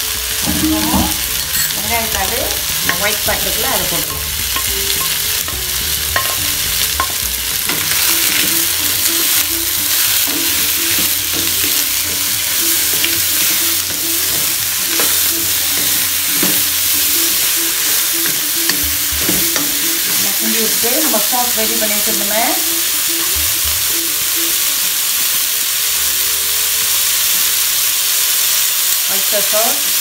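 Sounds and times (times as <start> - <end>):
food sizzling in a wok: 0.0 - 30.0
spatula scraping and tapping pan: 0.4 - 17.1.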